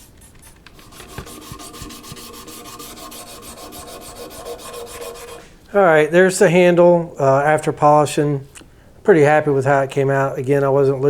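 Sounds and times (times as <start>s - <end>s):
hand sanding metal: 0.6s - 5.6s.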